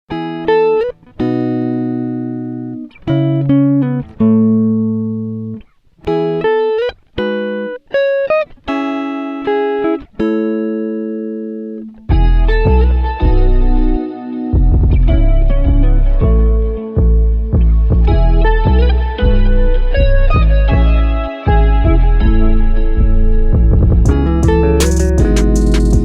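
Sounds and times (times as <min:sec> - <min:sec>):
held chords: 0:08.8 - 0:26.0
deep bass: 0:12.1 - 0:14.0, 0:14.6 - 0:26.0.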